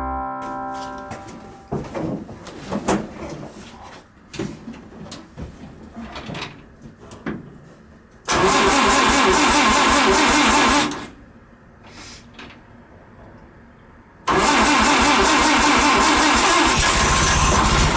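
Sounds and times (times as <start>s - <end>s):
engine cranking on starter: 8.3s - 11.2s, 14.3s - 17.9s.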